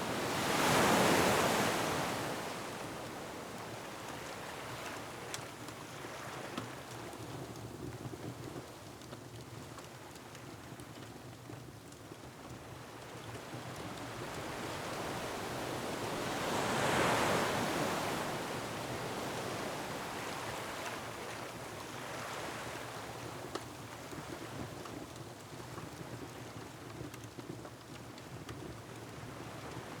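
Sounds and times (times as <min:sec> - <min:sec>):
wind: 0:00.0 - 0:30.0
surf breaking on rocks: 0:14.1 - 0:20.6.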